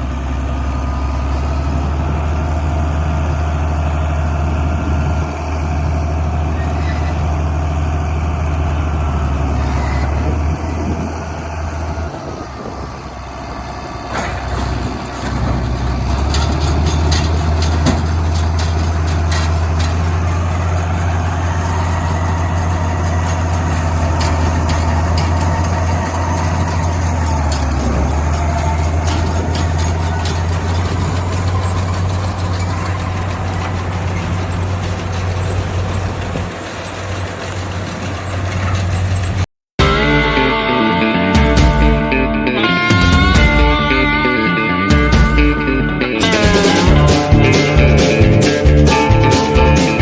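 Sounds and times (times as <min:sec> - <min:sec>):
diesel engine running: 0:00.0 - 0:50.0
clicks and rattles: 0:14.1 - 0:39.5.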